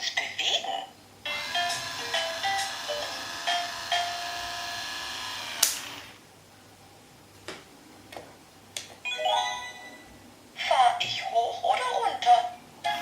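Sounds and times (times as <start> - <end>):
steady electronic hum: 1.0 - 6.4
sharp click: 5.6 - 5.8.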